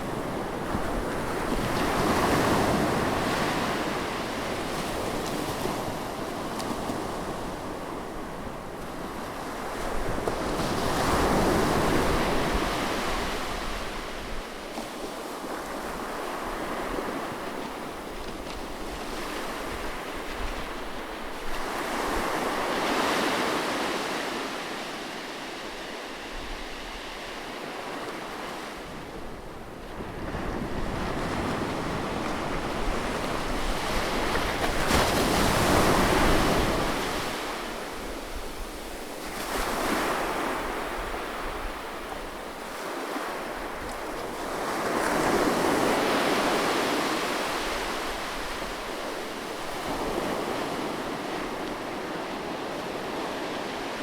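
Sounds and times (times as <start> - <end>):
sea waves washing ashore: 0.0 - 54.0
wind: 0.0 - 54.0.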